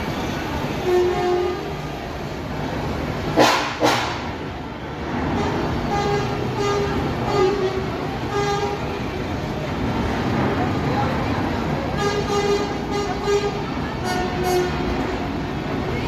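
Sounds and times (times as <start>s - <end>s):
engine and traffic rumble: 0.0s - 16.0s
truck horns tooting: 0.6s - 2.1s, 3.3s - 4.4s, 5.2s - 9.4s, 11.8s - 15.5s.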